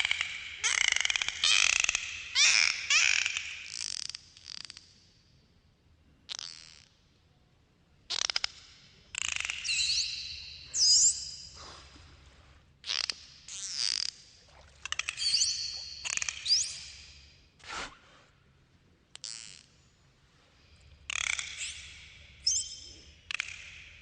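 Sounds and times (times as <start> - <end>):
dolphin whistles: 15.1 - 17.2.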